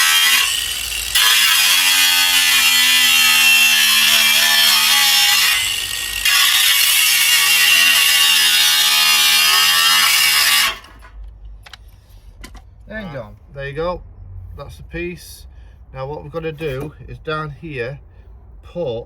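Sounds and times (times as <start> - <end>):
angle grinder cutting steel: 0.0 - 11.1.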